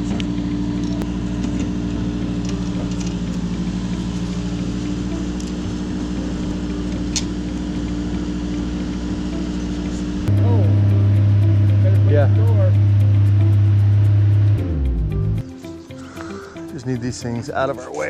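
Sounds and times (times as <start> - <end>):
engine idling: 0.0 - 16.7.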